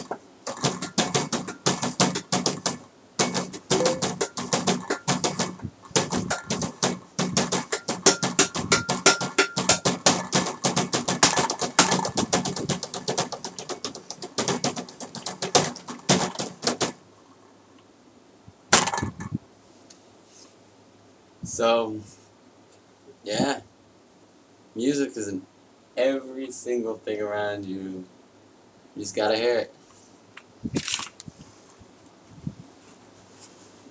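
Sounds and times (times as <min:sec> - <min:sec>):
fast tapping on hard objects: 0:00.0 - 0:17.0.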